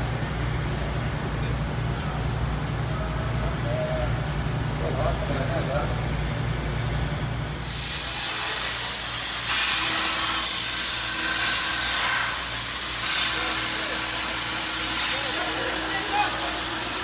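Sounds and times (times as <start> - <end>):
plasma arc hissing: 7.4 - 17.0.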